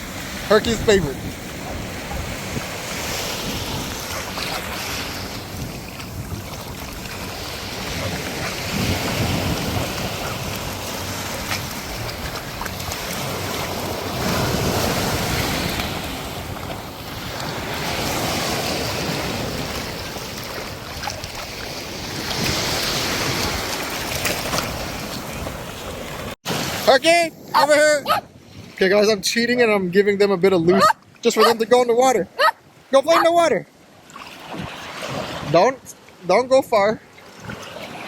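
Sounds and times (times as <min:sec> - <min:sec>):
wind buffeting microphone: 0:00.0 - 0:26.2
small surf washing onto beach: 0:00.0 - 0:28.8.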